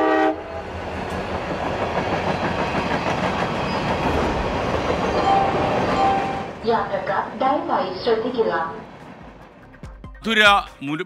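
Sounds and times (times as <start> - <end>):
train running on rails: 0.0 - 10.5.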